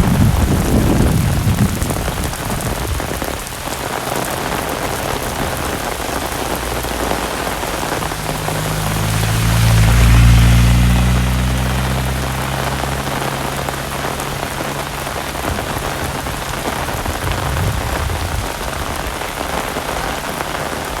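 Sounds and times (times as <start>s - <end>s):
heavy rain: 0.0s - 21.0s.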